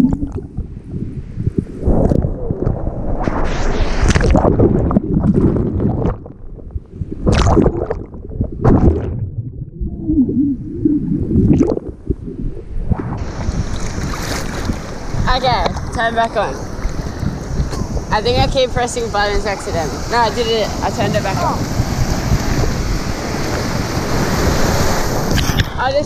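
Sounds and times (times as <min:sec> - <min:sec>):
muffled underwater rushing: 0:00.0 - 0:26.0
water splashes: 0:01.6 - 0:26.0
hissing water rush: 0:13.2 - 0:26.0.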